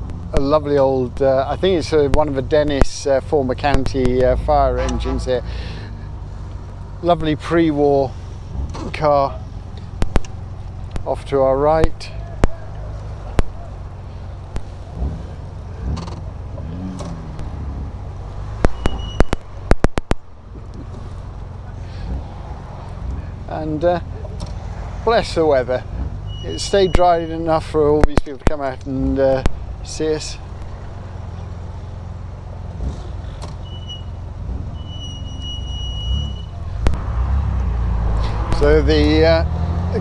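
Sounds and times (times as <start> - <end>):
car engine running: 0.0 - 40.0
high whistling tone: 18.7 - 19.4, 26.3 - 27.5, 33.6 - 36.7.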